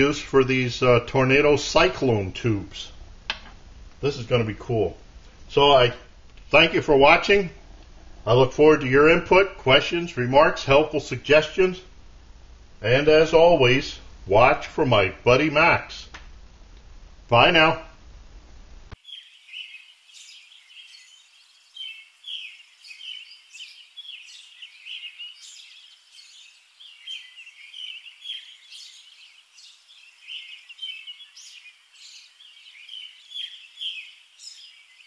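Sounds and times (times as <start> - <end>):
small birds chirping: 18.9 - 35.0.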